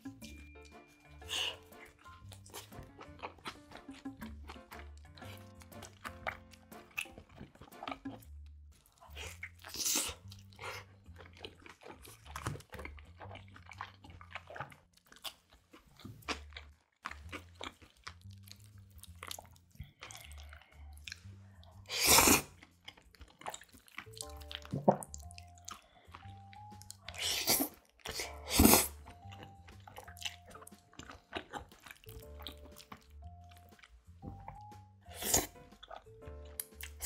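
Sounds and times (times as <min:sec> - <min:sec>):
chewing and crunching crust: 0:00.0 - 0:37.0
wet mouth clicks: 0:01.2 - 0:33.9, 0:34.5 - 0:37.0
loud slurp: 0:21.9 - 0:22.6, 0:27.1 - 0:29.1, 0:35.1 - 0:35.6.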